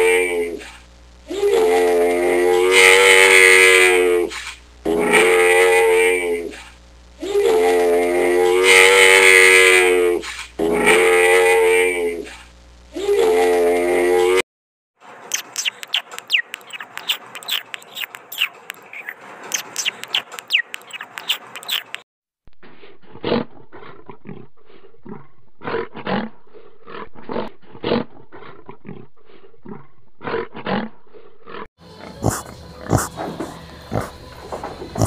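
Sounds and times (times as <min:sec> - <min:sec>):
piglets grunting: 0:01.3 - 0:04.3, 0:04.9 - 0:06.6, 0:07.2 - 0:12.4, 0:23.1 - 0:35.0
high falling chirps: 0:15.3 - 0:22.0
bear growling roars: 0:22.8 - 0:34.2.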